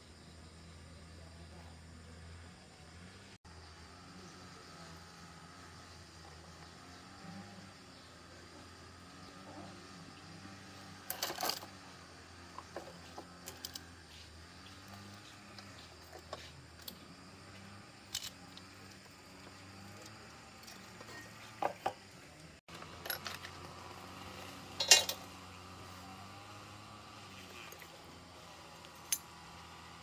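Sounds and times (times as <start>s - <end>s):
clinks of small parts and tools: 11.0s - 11.8s, 12.6s - 14.0s, 18.0s - 22.0s, 22.9s - 23.7s, 24.8s - 25.2s.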